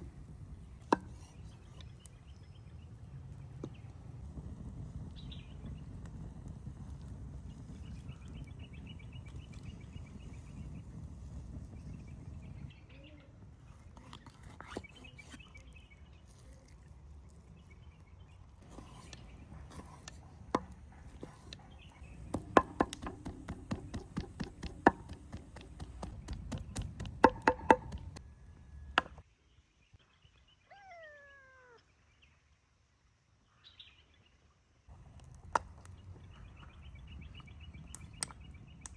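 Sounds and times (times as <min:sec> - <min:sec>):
knife chopping on board: 0:18.7 - 0:28.2.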